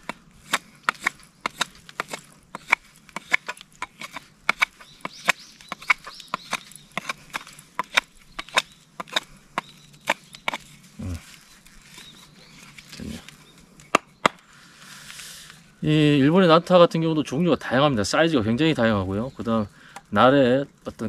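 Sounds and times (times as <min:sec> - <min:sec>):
hatchet chopping wood: 0:00.0 - 0:10.7, 0:13.9 - 0:14.4.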